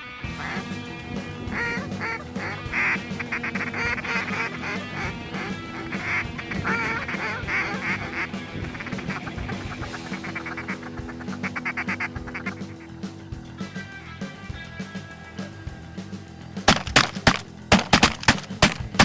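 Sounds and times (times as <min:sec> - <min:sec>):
background music: 0:00.0 - 0:14.8
geese honking: 0:00.2 - 0:12.8, 0:16.7 - 0:19.0.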